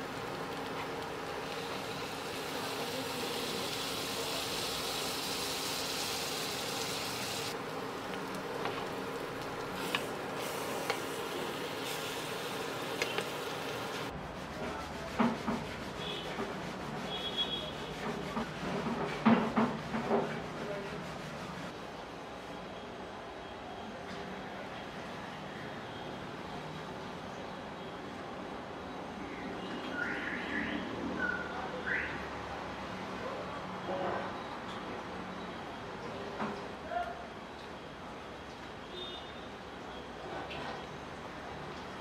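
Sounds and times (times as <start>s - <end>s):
bread sizzling on a griddle: 0.0s - 14.1s.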